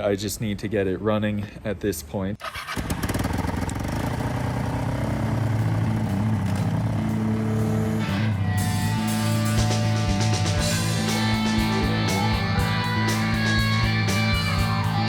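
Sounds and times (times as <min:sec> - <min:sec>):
rock music with distorted guitar: 0:07.0 - 0:15.0.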